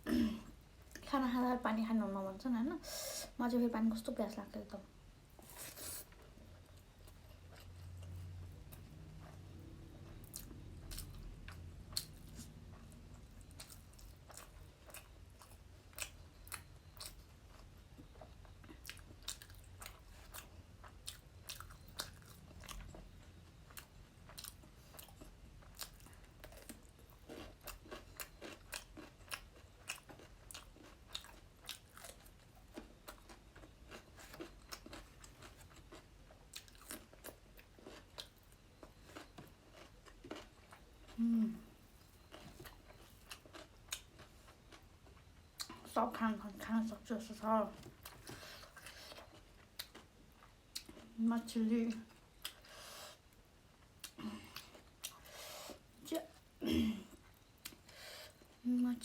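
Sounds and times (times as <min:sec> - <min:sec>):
person chewing crunchy food: 0:05.4 - 0:46.0, 0:47.7 - 0:51.2, 0:51.9 - 0:56.5, 0:57.2 - 0:58.6.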